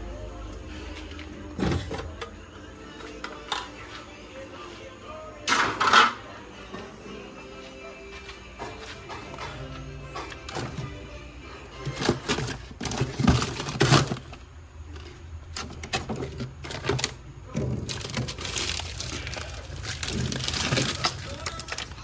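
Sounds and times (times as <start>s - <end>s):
plastic crinkling and rustling: 11.8s - 14.4s, 15.0s - 22.0s.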